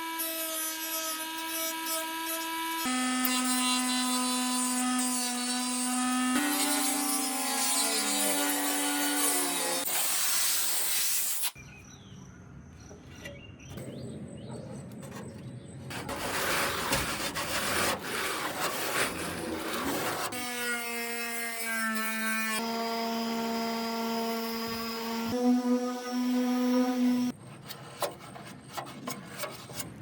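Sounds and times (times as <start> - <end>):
sanding metal body: 15.9 - 20.4.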